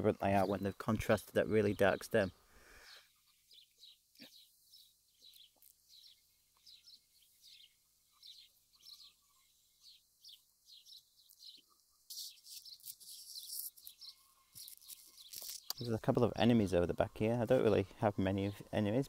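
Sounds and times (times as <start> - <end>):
songbird chirping: 0.0 - 19.0.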